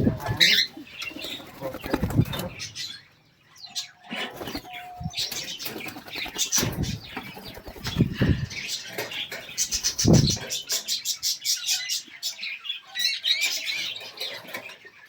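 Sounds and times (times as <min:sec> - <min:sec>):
birds flapping wings: 0:01.1 - 0:02.6, 0:04.2 - 0:10.5.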